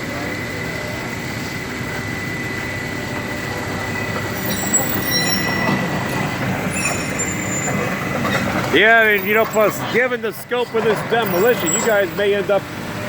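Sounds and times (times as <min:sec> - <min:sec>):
demolition machinery rumbling: 0:00.0 - 0:13.0
metal squeals: 0:03.8 - 0:13.0.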